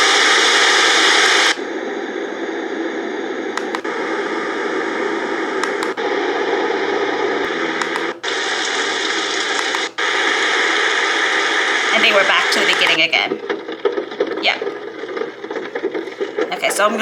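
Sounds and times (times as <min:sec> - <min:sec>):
white noise machine hiss: 0:00.0 - 0:13.2
machine button clicks: 0:03.6 - 0:03.9, 0:05.6 - 0:06.0, 0:07.8 - 0:08.2, 0:09.6 - 0:09.9, 0:12.5 - 0:13.1.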